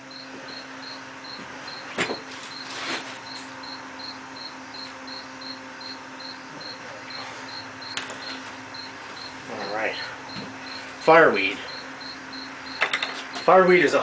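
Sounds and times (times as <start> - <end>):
faint steady hum: 0.0 - 14.0
insect chirping: 0.1 - 1.9, 2.5 - 10.9, 11.5 - 13.0.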